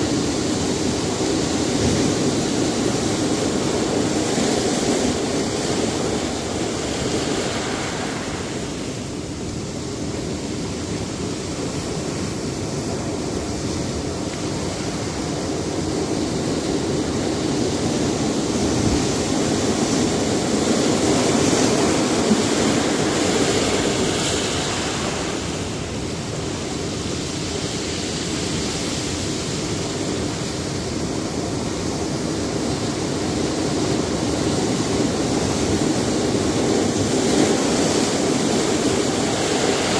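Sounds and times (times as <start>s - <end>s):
waves breaking on rocky shore: 0.0s - 39.9s.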